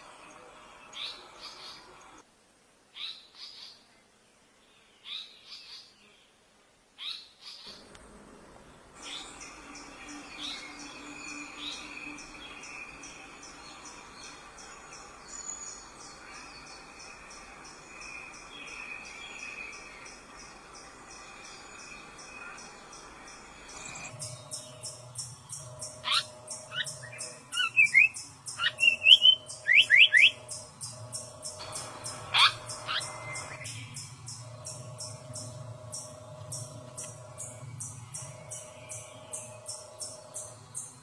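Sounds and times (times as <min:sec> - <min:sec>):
small birds chirping: 0:00.0 - 0:02.2, 0:08.8 - 0:41.0
high insect drone: 0:07.7 - 0:41.0
small bird chirping and whistling: 0:25.8 - 0:30.6.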